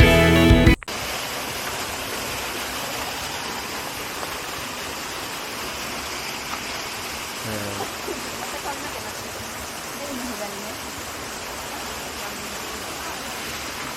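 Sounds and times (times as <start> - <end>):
background music: 0.0 - 0.8
waterfall roar: 0.9 - 13.9.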